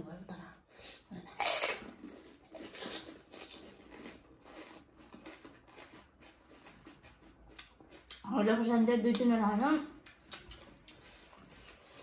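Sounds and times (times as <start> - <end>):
chewing: 1.4 - 8.3, 10.0 - 12.0.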